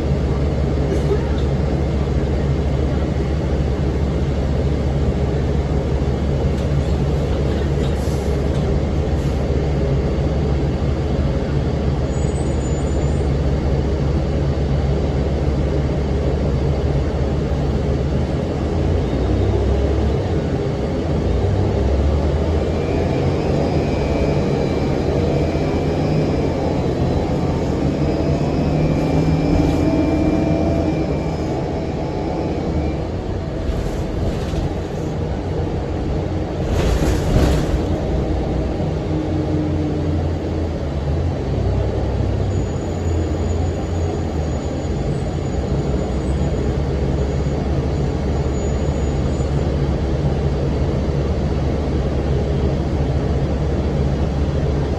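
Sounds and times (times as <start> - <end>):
bus diesel engine rumble: 0.0 - 54.9.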